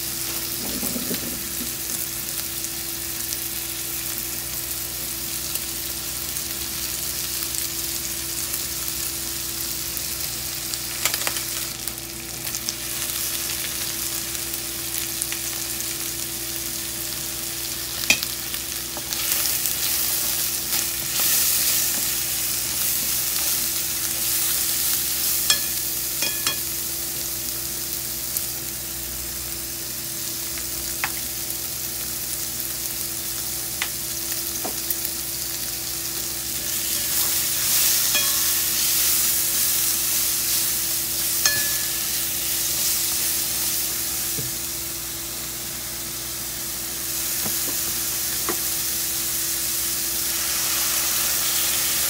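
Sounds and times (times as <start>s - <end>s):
food sizzling in a frying pan: 0.0s - 52.0s.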